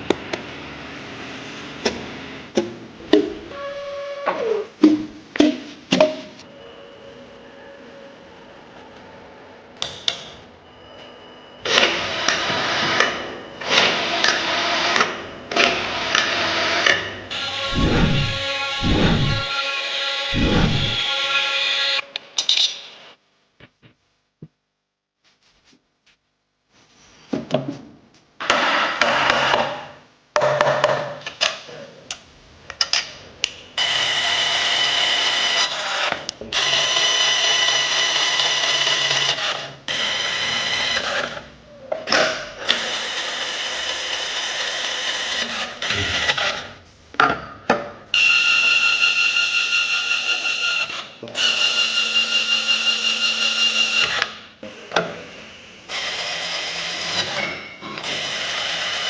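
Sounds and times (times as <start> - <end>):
power drill whining: 17.3 - 19.6, 48.2 - 54.3.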